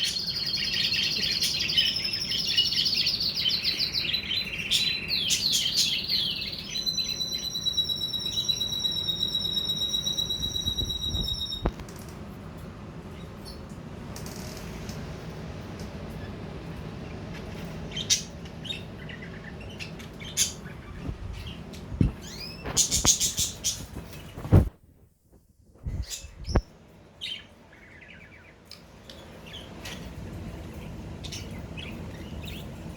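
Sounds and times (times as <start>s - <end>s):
budgerigars chirping and warbling: 0.0s - 9.4s, 17.0s - 24.4s, 29.4s - 32.9s
high-pitched whistling tone: 6.8s - 11.8s.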